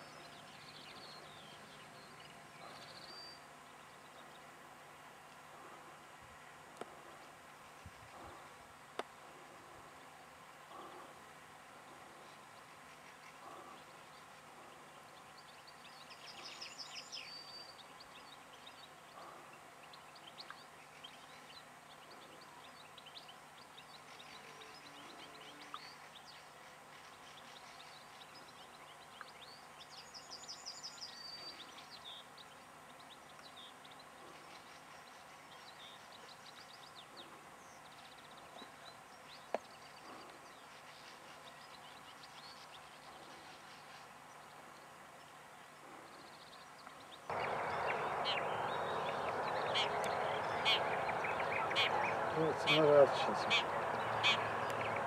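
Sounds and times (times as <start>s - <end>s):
birds twittering: 11.9s - 55.0s.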